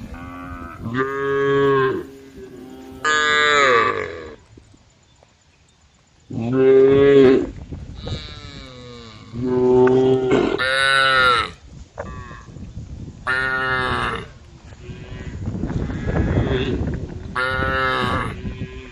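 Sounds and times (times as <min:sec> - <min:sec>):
cows mooing: 0:00.0 - 0:04.4.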